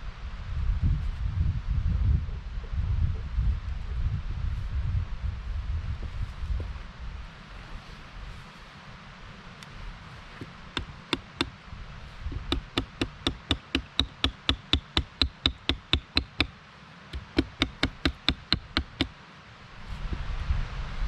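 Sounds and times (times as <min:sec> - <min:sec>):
wood knocking on wood: 0:10.3 - 0:11.6, 0:12.3 - 0:16.5, 0:17.2 - 0:19.1.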